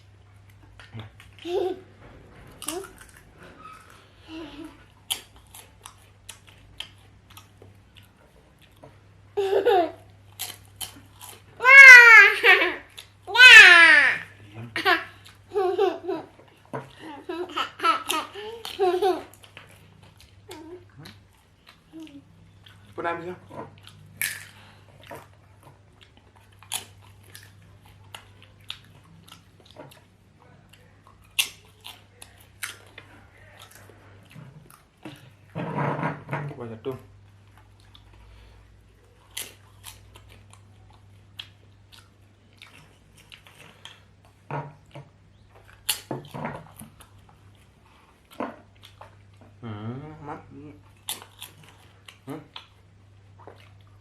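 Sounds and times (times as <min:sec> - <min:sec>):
close chewing and mouth clicks: 0:04.7 - 0:09.2, 0:10.1 - 0:11.6, 0:18.0 - 0:35.5, 0:37.2 - 0:54.0
high wavering child vocalization: 0:13.3 - 0:14.4.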